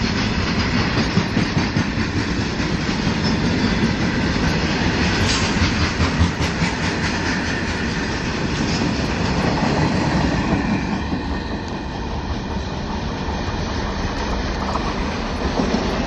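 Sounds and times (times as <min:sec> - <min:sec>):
freight train wagons rolling: 0:00.0 - 0:16.0.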